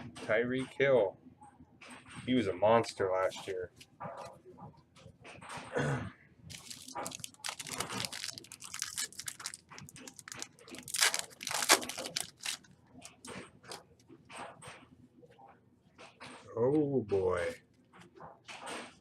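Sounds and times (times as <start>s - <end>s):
foil wrappers tearing and crinkling: 6.5s - 13.8s.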